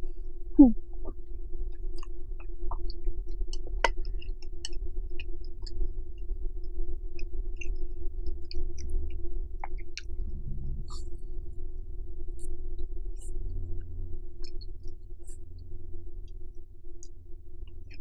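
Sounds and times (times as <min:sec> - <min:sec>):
steady low hum: 0:00.0 - 0:18.0
wet chewing mouth clicks: 0:01.7 - 0:05.8, 0:07.2 - 0:11.7, 0:12.4 - 0:15.6.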